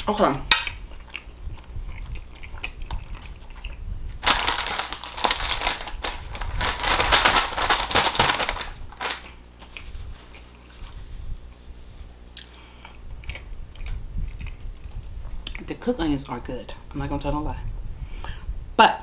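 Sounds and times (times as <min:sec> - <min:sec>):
dense crackling and crunching: 0:04.2 - 0:09.4.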